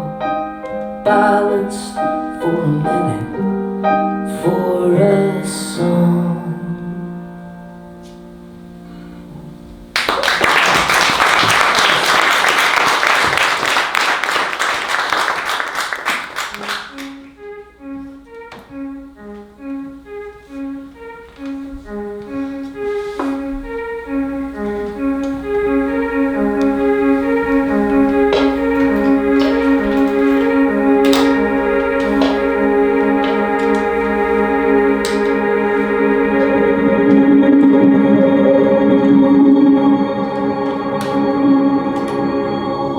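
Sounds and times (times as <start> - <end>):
held chord of a song: 0.0 - 42.9
audience clapping: 9.9 - 17.4, 24.4 - 37.3
instrument playing repeating notes: 23.5 - 42.9.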